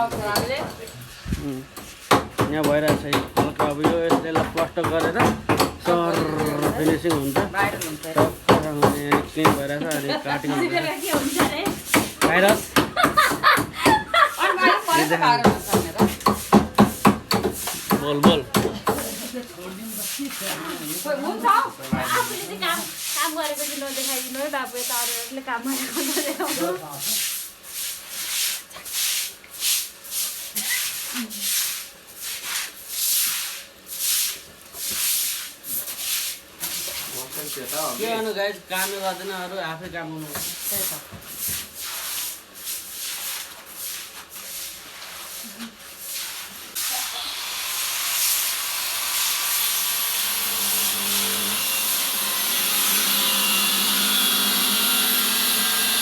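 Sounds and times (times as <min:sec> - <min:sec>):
scraping on masonry: 0:00.0 - 0:33.4, 0:34.3 - 0:46.8
power tool cutting: 0:46.8 - 0:56.0.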